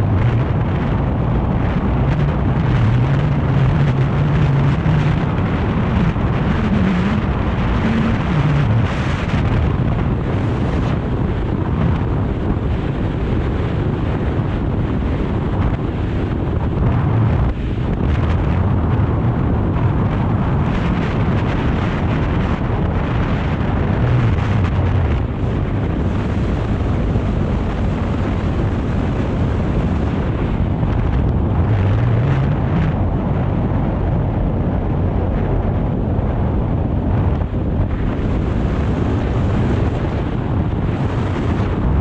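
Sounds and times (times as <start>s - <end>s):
motorcycle engine running: 0.0s - 10.8s
wind noise on microphone: 0.0s - 42.0s.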